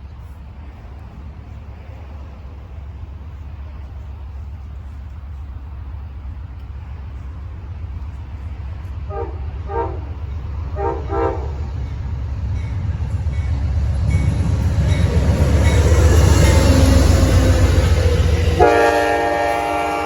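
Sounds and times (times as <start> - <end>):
train rumble: 0.0 - 20.0
distant train horn blasts: 9.0 - 12.7, 14.9 - 20.0.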